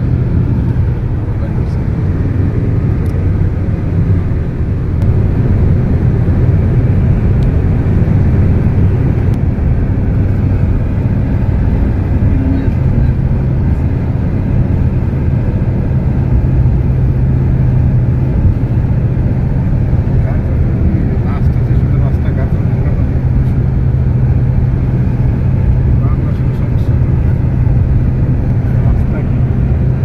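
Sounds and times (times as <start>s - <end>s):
car road and engine noise: 0.0s - 30.0s.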